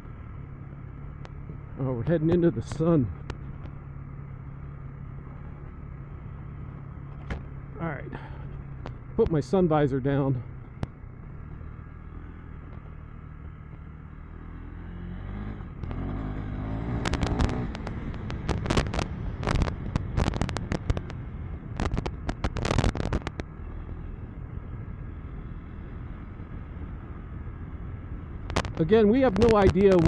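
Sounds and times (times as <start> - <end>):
sharp cracks and knocks: 7.1 - 7.5, 15.8 - 23.5, 28.4 - 28.8
motorcycle engine revving: 10.1 - 30.0.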